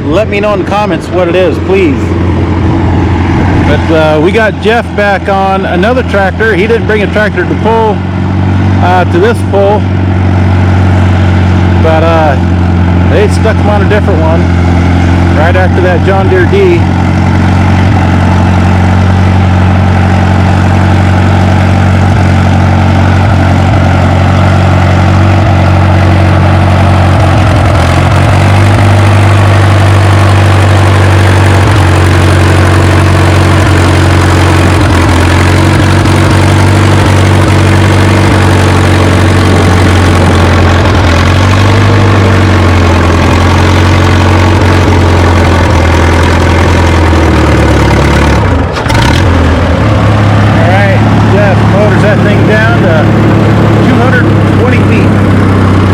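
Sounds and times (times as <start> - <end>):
tractor engine working under load: 0.0 - 55.9.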